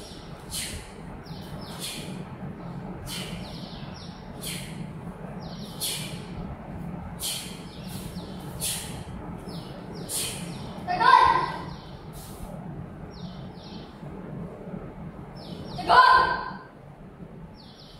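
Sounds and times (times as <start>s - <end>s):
low hum: 0.0s - 17.9s
bird chirping: 3.1s - 4.8s, 5.4s - 6.2s, 7.2s - 12.2s, 13.1s - 14.0s, 15.4s - 16.0s, 17.6s - 17.9s.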